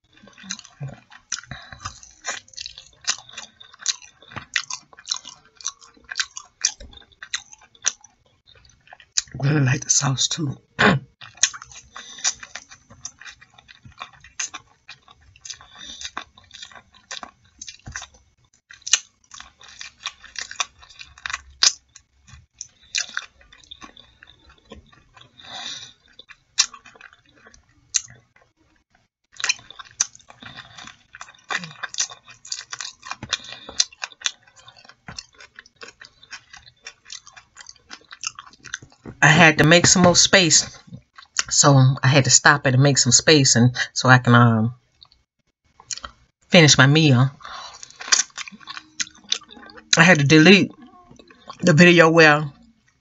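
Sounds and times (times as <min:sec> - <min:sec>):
person chewing food: 0:00.0 - 0:10.0, 0:10.6 - 0:41.5, 0:44.9 - 0:46.4, 0:47.4 - 0:51.8, 0:52.4 - 0:53.0
mouth smacks and clicks: 0:45.8 - 0:46.2.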